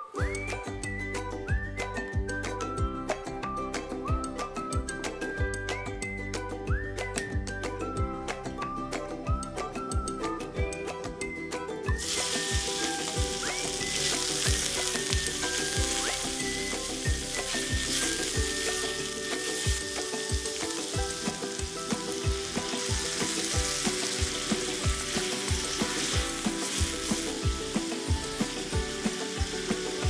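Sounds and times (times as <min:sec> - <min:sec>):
meat sizzling in a frying pan: 0:12.0 - 0:30.0.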